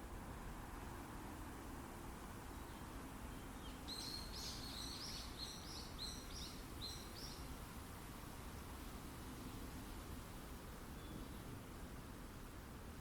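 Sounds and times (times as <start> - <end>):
wind through forest: 0.0 - 13.0
songbird singing: 2.3 - 7.8, 8.4 - 12.1.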